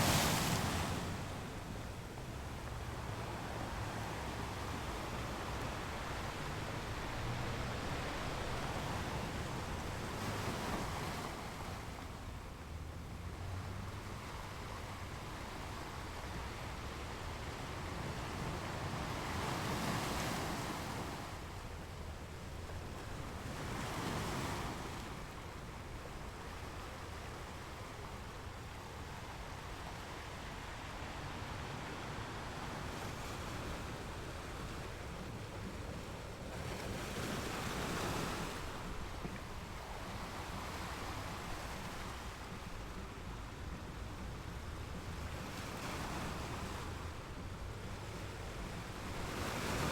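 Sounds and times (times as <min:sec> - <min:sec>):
ocean waves washing in: 0:00.0 - 0:19.4.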